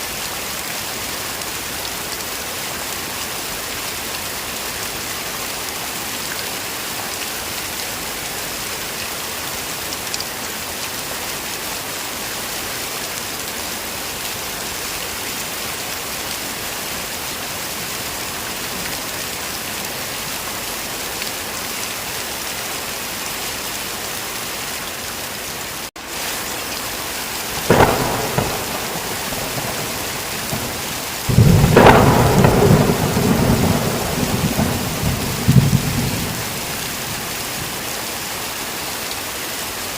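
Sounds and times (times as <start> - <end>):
heavy rain hissing: 0.0 - 39.9
sharp thunderclap: 27.6 - 37.4
rolling thunder rumble: 27.6 - 37.8.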